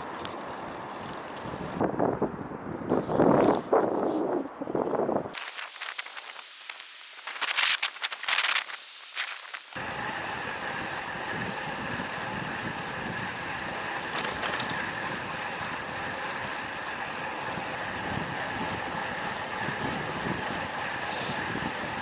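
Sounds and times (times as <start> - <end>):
wind buffeting microphone: 0.0 - 5.4, 9.8 - 22.0
tyre and road noise: 0.0 - 6.0, 9.8 - 22.0.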